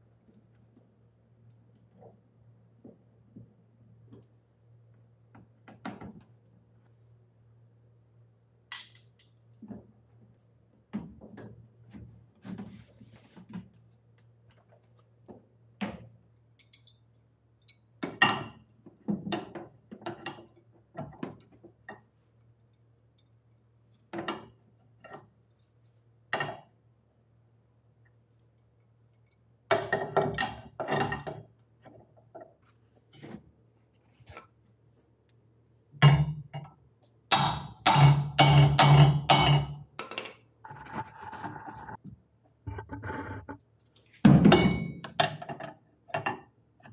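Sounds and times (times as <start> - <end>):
steady low hum: 40.6 - 43.8
tools knocking and clattering: 44.3 - 46.9.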